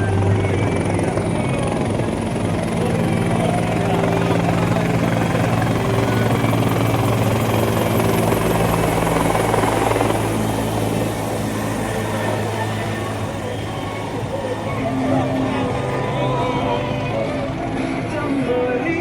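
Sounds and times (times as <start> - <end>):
helicopter rotor beating: 0.0 - 19.0.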